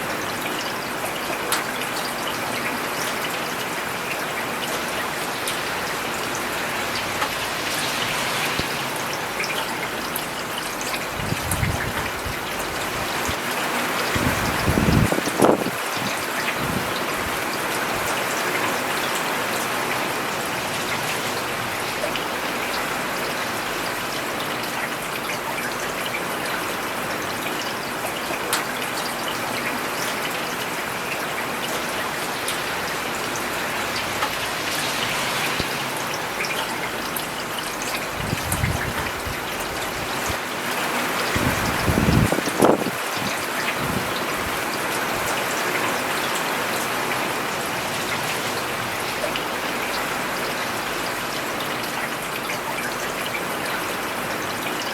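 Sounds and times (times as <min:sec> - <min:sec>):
rain falling on pavement: 0:00.0 - 0:54.9.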